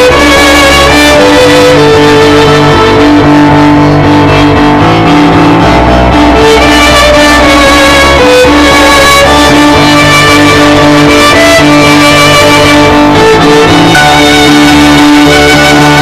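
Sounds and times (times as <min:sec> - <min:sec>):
bass line: 0:00.0 - 0:16.0
guitar-led instrumental music: 0:00.0 - 0:16.0
plucked and bowed strings: 0:00.0 - 0:16.0.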